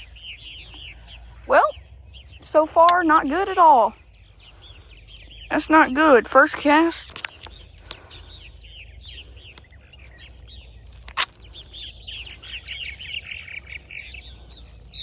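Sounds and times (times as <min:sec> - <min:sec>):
songbird chirping: 0:00.0 - 0:15.0
sharp click: 0:10.9 - 0:11.5.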